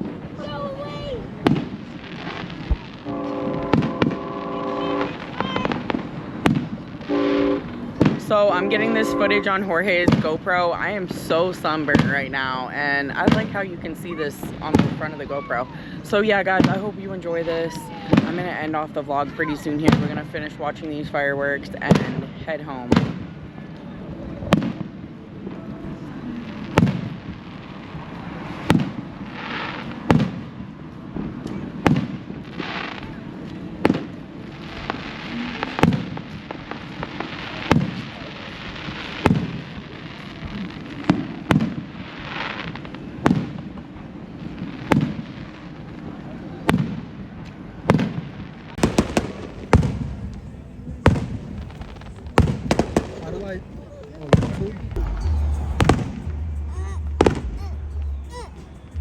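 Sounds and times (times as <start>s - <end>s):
firework crackle: 0.0s - 47.2s, 47.9s - 59.0s
firework shells bursting: 48.8s - 59.0s.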